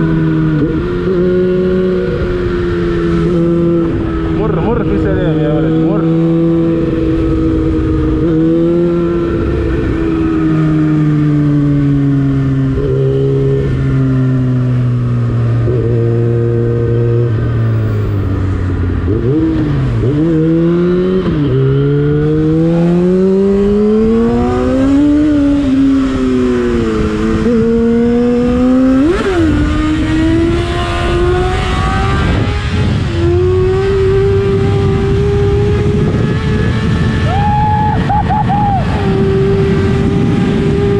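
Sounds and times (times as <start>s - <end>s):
motorcycle engine revving: 0.0s - 40.9s
wind rush: 22.3s - 40.9s.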